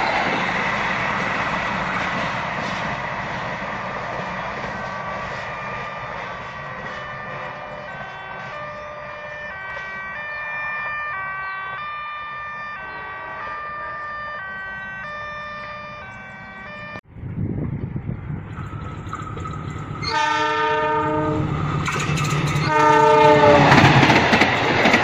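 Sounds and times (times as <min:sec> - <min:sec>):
train rumble: 0:00.0 - 0:10.2, 0:15.6 - 0:25.0.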